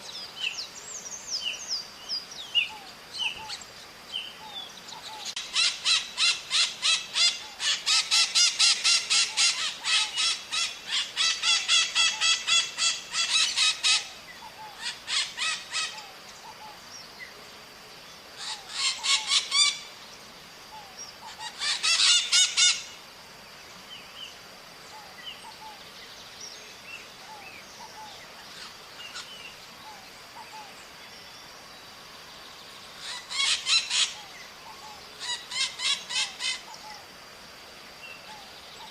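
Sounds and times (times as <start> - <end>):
parrots screeching: 5.4 - 14.1, 14.8 - 16.0, 18.4 - 19.8, 21.3 - 22.8, 33.0 - 34.2, 35.2 - 36.7.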